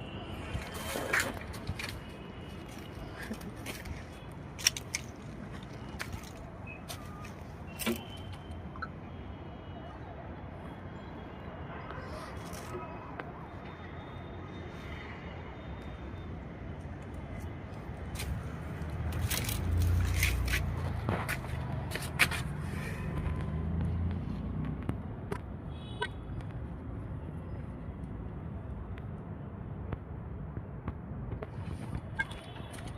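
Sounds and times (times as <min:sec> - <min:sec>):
motor vehicle rumble: 0:17.2 - 0:25.6.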